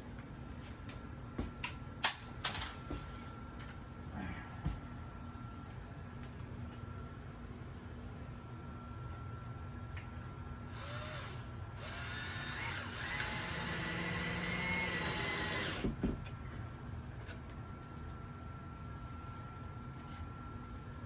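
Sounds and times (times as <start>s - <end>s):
drill driving screw into wood: 10.7s - 16.0s.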